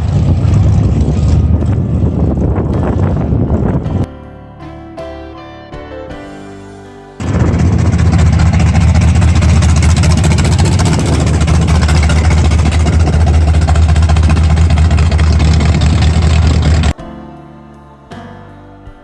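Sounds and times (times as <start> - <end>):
car engine with exhaust rumble: 0.0 - 4.1, 7.2 - 17.0.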